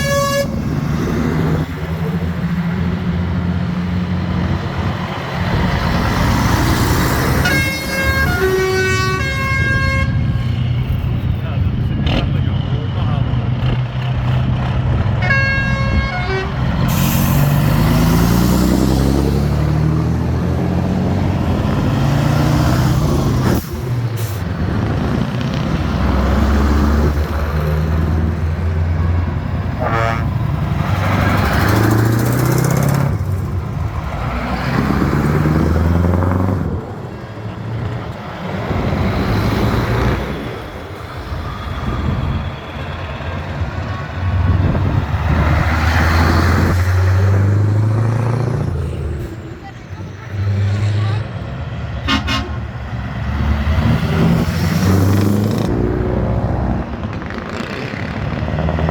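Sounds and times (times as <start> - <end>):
truck horn blast: 0.0 - 0.8, 7.2 - 10.6, 15.2 - 17.4, 29.7 - 30.5, 52.0 - 52.8
heavy truck engines revving: 0.0 - 58.9.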